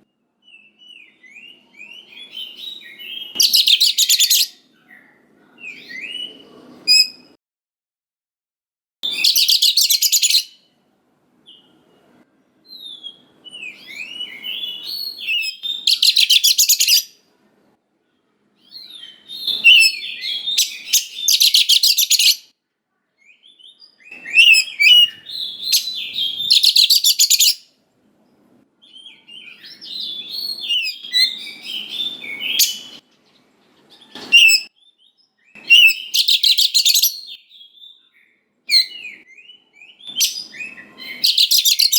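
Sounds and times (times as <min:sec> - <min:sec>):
bird song with harsh rattles: 0:02.2 - 0:05.0, 0:09.0 - 0:10.6, 0:13.0 - 0:17.1, 0:18.7 - 0:22.5, 0:24.0 - 0:27.7, 0:29.2 - 0:37.4, 0:38.1 - 0:41.9.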